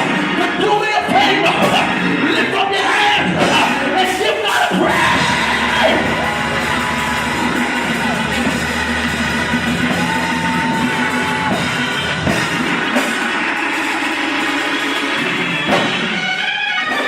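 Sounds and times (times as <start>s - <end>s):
band music with drums and guitar: 0.0s - 2.6s, 3.2s - 17.0s
high held note: 4.8s - 13.4s.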